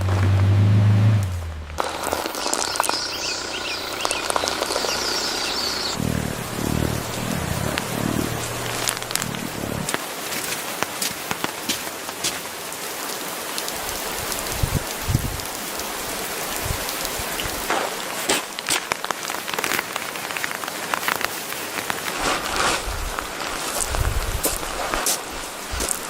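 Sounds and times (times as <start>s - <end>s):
dull low thumps: 0.0s - 1.9s, 5.8s - 10.0s
rain falling on a surface: 0.0s - 26.0s.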